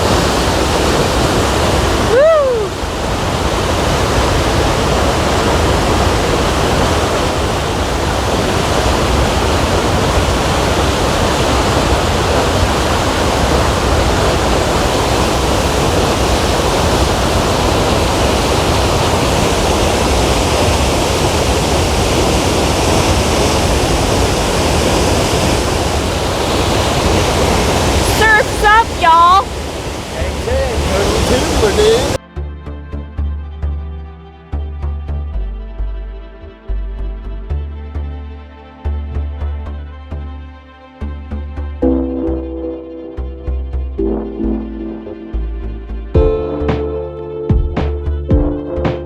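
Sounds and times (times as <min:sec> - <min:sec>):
waterfall rushing: 0:00.0 - 0:32.2.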